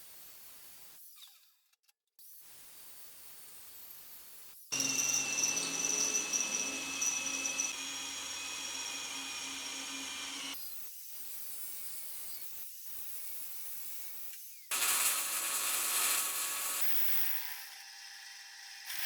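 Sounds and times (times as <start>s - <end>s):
power tool whining: 4.8s - 10.6s, 14.7s - 19.0s.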